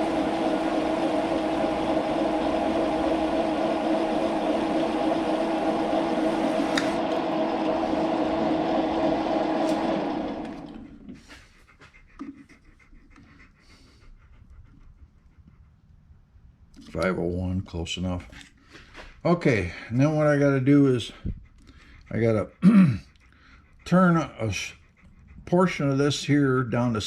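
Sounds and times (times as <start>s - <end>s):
metal lathe motor whine: 0.0s - 11.1s.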